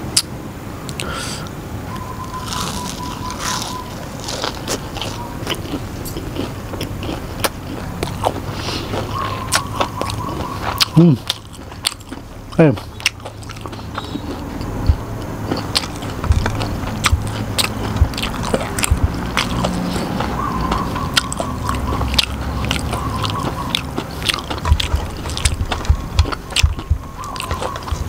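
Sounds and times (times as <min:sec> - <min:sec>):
crunching crispy fried food: 0:02.3 - 0:28.0.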